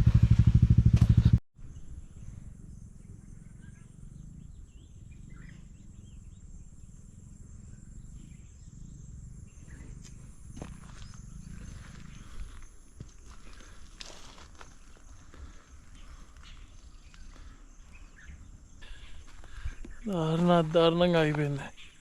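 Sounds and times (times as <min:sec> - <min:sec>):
motorcycle engine running: 0:00.0 - 0:01.4
faint bird chirps: 0:01.6 - 0:22.0
high insect drone: 0:02.0 - 0:22.0.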